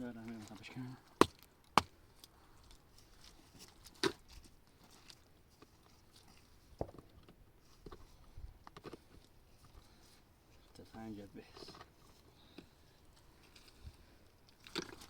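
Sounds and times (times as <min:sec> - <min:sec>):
sharp knocks and cracks: 0:01.2 - 0:01.9.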